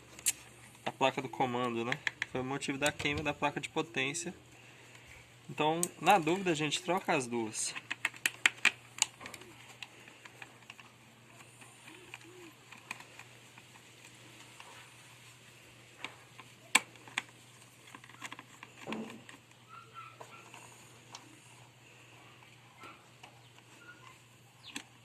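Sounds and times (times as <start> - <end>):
plastic parts clicking and tapping: 1.6 - 3.4, 5.8 - 14.7, 16.0 - 21.3.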